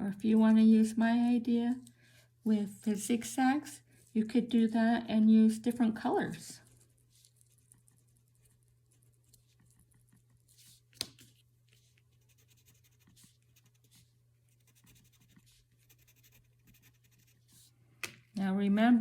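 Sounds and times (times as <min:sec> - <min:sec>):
low steady hum: 0:00.0 - 0:19.0
crayon scratching on paper: 0:12.1 - 0:17.7.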